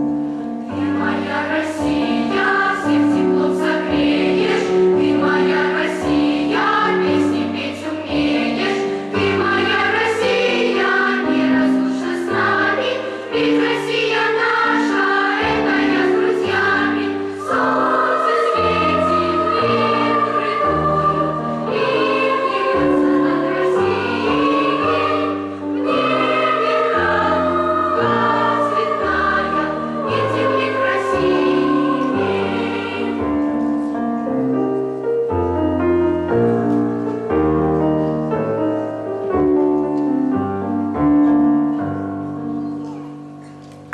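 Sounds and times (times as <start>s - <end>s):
choir singing with accompaniment: 0.2s - 34.1s.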